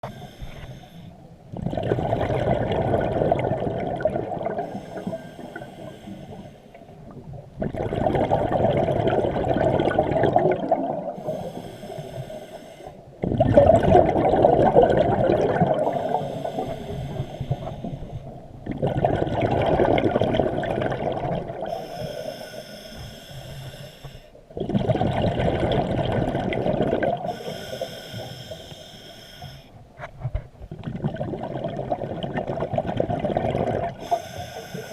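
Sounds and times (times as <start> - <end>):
regulator inhale hiss: 0.0 - 1.3, 4.6 - 6.9, 11.2 - 13.1, 15.8 - 18.4, 21.7 - 24.4, 27.2 - 29.8, 34.0 - 34.9
exhaled bubbles rushing: 1.5 - 5.1, 7.0 - 11.3, 13.2 - 16.6, 18.6 - 21.8, 24.6 - 27.3, 30.7 - 34.1.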